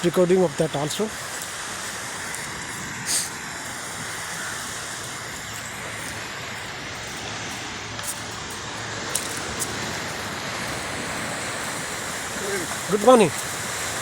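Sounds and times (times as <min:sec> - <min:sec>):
wind: 0:00.0 - 0:14.0
surf: 0:09.2 - 0:14.0.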